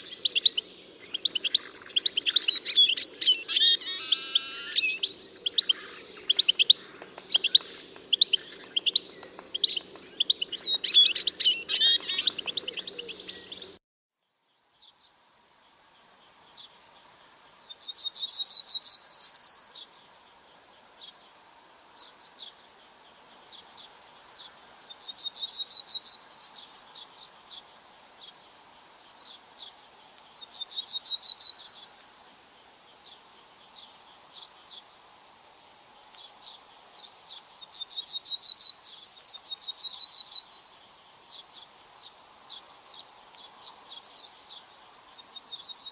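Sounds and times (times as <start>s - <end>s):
birds chirping: 0.0s - 13.8s
bird song trill: 0.0s - 21.3s, 22.0s - 28.4s, 29.1s - 34.9s, 36.1s - 45.9s.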